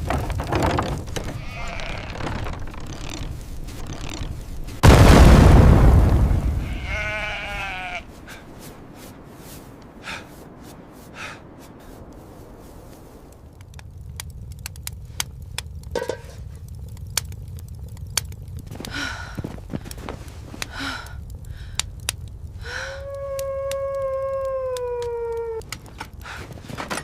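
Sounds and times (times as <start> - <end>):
steady low rumble: 0.0 - 27.0
sheep bleating: 1.2 - 2.6, 6.6 - 8.1
loud sudden boom: 4.8 - 7.5
sharp clicks: 13.3 - 26.8.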